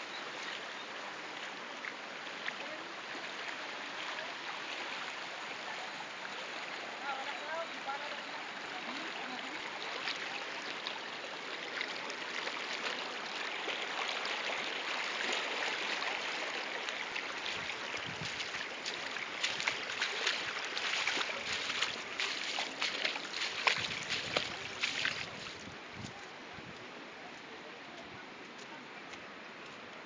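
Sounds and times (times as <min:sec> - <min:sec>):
floodwater rushing: 0:00.0 - 0:25.8
crackles and splashes: 0:00.0 - 0:26.2.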